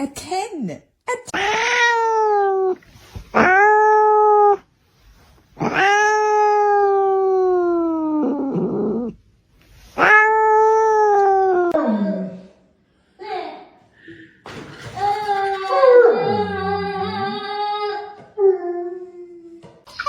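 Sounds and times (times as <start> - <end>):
cat yowling: 1.4 - 2.8, 3.4 - 4.6, 5.6 - 9.1, 10.0 - 11.8.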